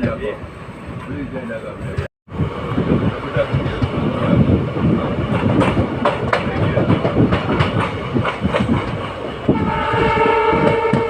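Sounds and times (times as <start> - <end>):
train coaches rattling: 0.0 - 11.0
train horn: 9.5 - 11.0.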